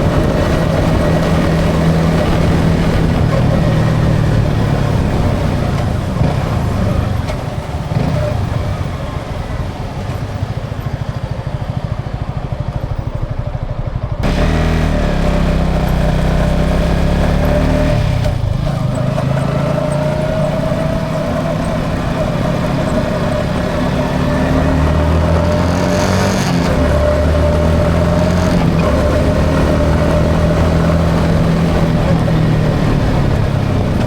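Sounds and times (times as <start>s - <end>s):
motorcycle engine running: 0.0s - 34.0s
road and wind noise: 0.0s - 34.0s.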